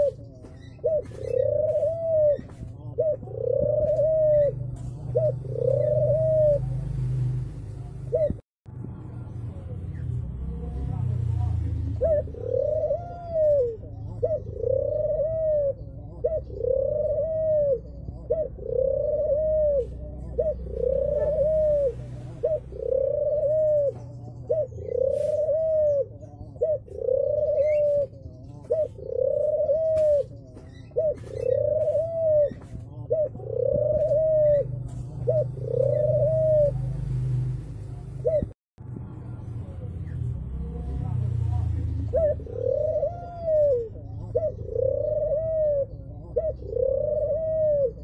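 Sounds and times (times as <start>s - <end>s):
dove cooing: 0.0s - 7.2s, 7.8s - 8.4s, 10.6s - 38.6s, 39.8s - 48.0s.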